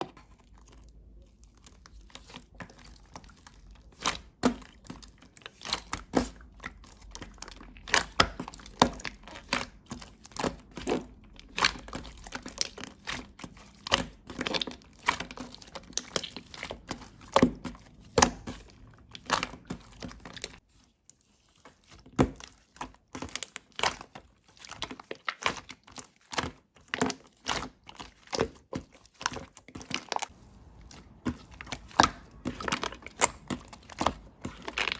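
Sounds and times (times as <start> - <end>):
slime crackling and popping: 29.2 - 34.9.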